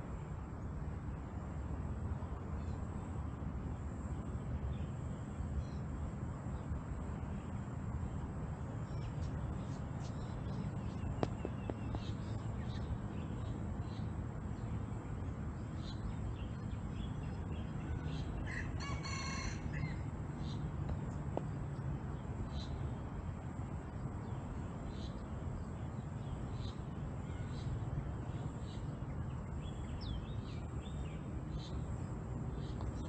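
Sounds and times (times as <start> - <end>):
birds chirping: 8.8 - 21.5, 24.3 - 33.0.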